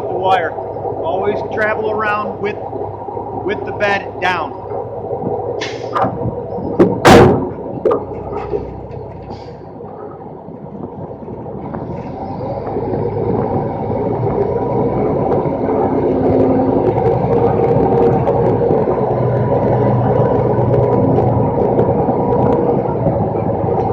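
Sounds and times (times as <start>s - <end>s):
truck diesel engine running: 0.0s - 23.9s
loud sharp bang: 6.8s - 7.6s.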